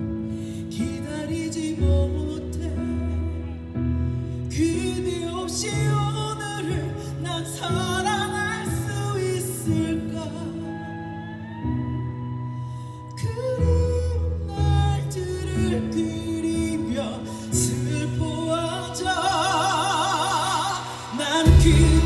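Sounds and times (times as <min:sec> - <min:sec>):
live band playing ballad: 0:19.2 - 0:22.0.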